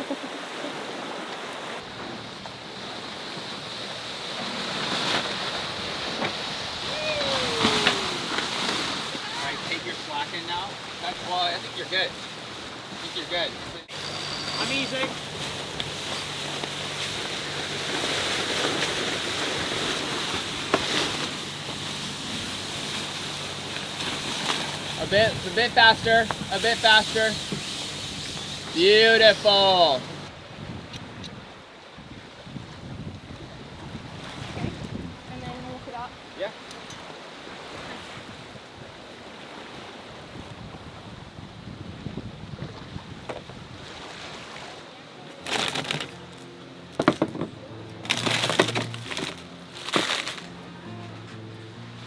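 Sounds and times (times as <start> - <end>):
ocean waves rushing: 0.0 - 30.6
sea noise: 0.0 - 52.0
wind buffeting microphone: 15.2 - 36.1, 38.0 - 44.0.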